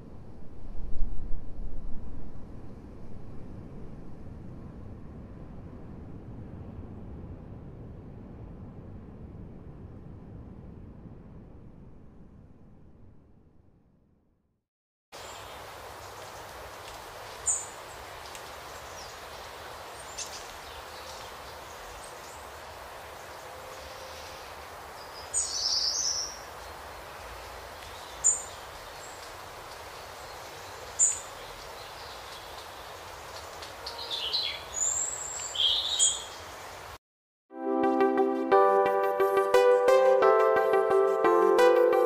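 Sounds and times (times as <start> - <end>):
steady outdoor hiss: 15.2 - 37.0
wild birds chirping: 15.2 - 37.0.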